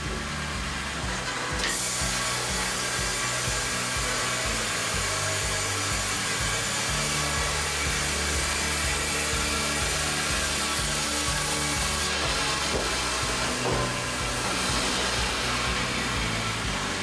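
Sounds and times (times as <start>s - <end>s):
low sustained background music: 0.0s - 17.0s
power saw cutting timber: 0.0s - 17.0s.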